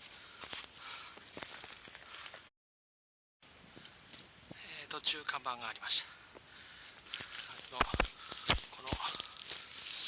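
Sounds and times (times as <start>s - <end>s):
footsteps: 0.0s - 2.5s, 6.4s - 10.0s
faint outdoor background: 3.4s - 10.0s.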